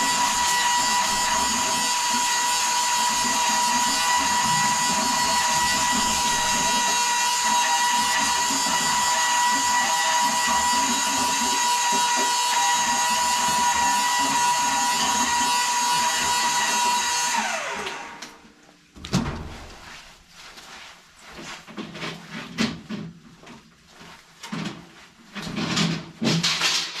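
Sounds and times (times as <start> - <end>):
power drill motor whining: 0.0 - 18.2.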